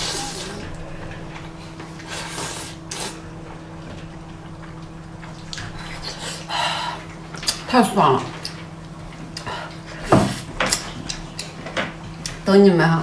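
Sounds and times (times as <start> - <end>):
slurping noodles: 0.0 - 3.3
steady low hum: 0.0 - 13.0.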